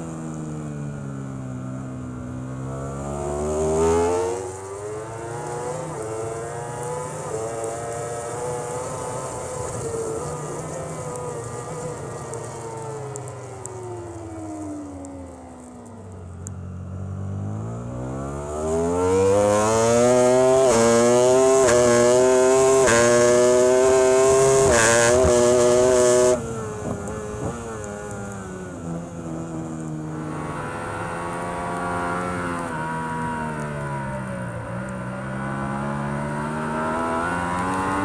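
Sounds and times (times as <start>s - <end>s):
racing motorbike engine revving: 17.1s - 38.0s.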